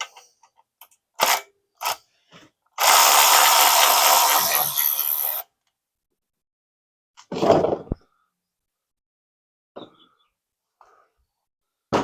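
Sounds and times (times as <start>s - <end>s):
power tool running: 2.8s - 5.4s.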